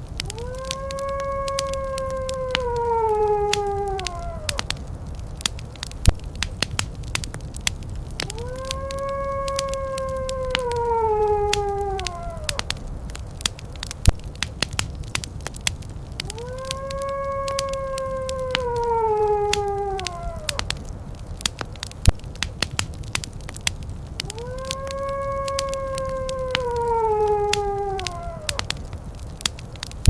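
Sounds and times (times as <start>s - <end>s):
wood fire crackling: 0.0s - 30.0s
wolf howling: 0.1s - 5.6s, 8.1s - 13.9s, 16.1s - 21.4s, 24.0s - 29.5s.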